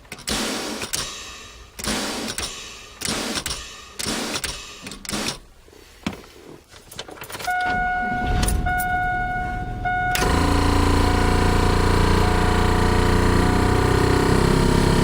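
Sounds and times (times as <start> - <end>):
starter cranking: 1.8 - 5.4, 10.1 - 15.0
electronic warning buzzer: 7.5 - 15.0
truck engine running: 7.9 - 15.0.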